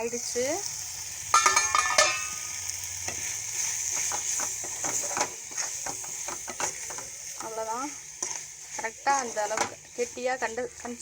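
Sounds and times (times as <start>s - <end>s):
food sizzling in a pan: 0.0s - 11.0s
metal lid clattering: 1.4s - 2.4s
spoon stirring and scraping pan: 1.4s - 11.0s.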